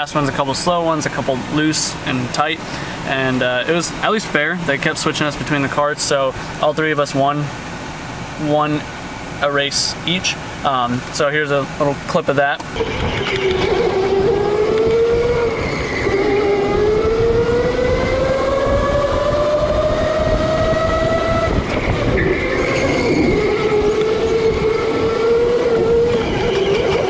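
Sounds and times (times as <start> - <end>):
rushing noise: 0.0 - 27.0
electric go-kart motor whining: 12.7 - 27.0.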